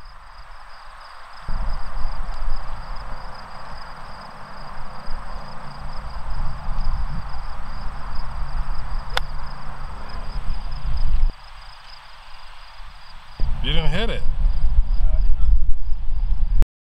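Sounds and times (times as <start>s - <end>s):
insects trilling: 0.0s - 16.3s
loud low rumble: 13.4s - 16.6s.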